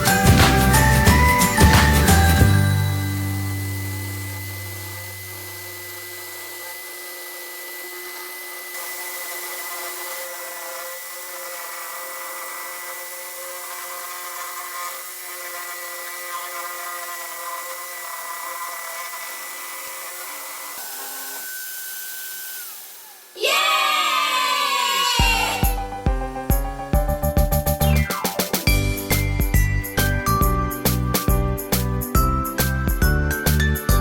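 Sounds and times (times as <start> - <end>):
electric drill cutting wood: 0.0 - 34.0.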